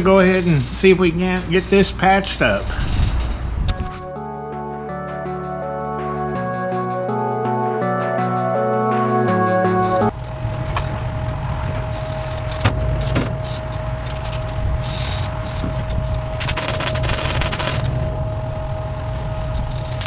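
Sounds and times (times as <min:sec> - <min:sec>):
welder crackling and sputtering: 0:00.0 - 0:03.6, 0:13.4 - 0:18.0
steady hum: 0:00.0 - 0:20.0
background music: 0:03.7 - 0:10.1.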